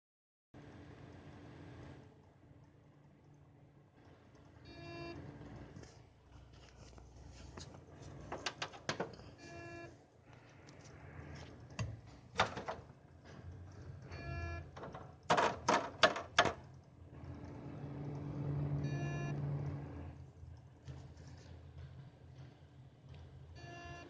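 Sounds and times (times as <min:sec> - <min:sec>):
low hum: 0:16.2 - 0:24.0.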